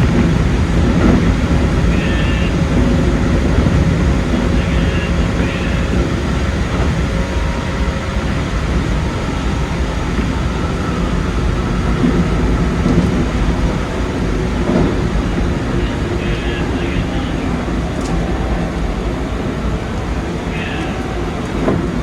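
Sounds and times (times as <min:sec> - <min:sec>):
faint steady whine: 0:00.0 - 0:22.0
train wheels rumbling on rails: 0:00.0 - 0:22.0.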